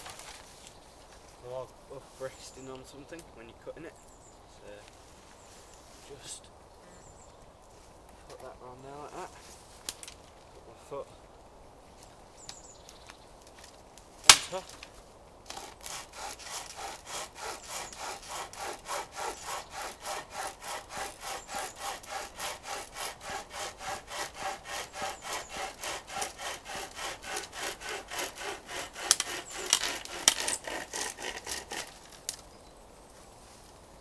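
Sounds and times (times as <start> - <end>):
wood snapping sharply: 9.8 - 10.2, 12.4 - 15.9, 29.0 - 32.4
pocket chainsaw cutting a log: 15.5 - 32.2.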